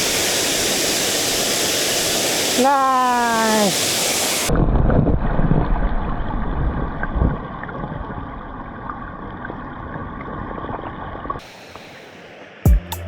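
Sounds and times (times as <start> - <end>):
mountain stream rushing: 0.0 - 4.5.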